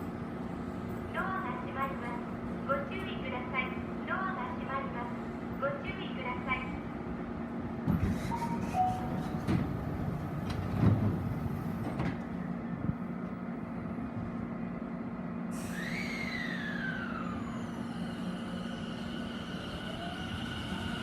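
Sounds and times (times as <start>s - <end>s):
stopped train hum: 0.0s - 21.0s
train doors knocking shut: 7.8s - 12.4s
air brakes hissing: 7.9s - 9.5s, 15.5s - 19.6s
traction motor inverter whine: 15.6s - 21.0s.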